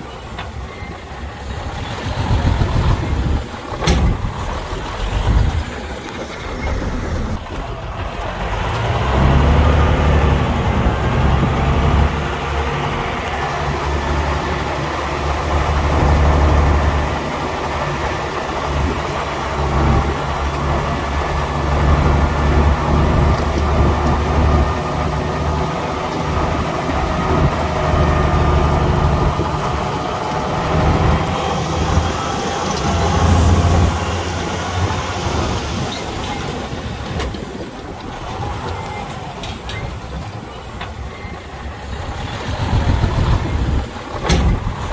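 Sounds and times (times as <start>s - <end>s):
heavy diesel machinery engine: 0.0s - 44.9s.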